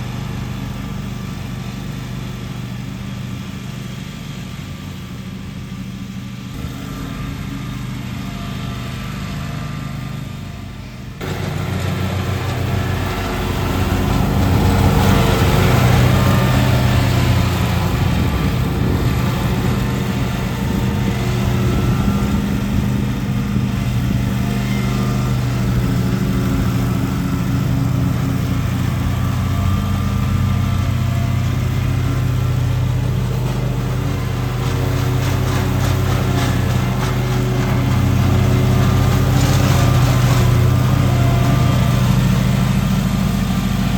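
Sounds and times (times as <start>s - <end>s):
lawn mower engine running: 0.0s - 43.9s.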